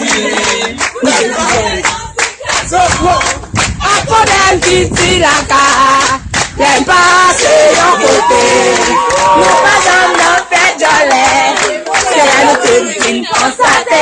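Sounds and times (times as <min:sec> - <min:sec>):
group of voices singing: 0:00.0 - 0:14.0
hand clapping: 0:11.1 - 0:13.6.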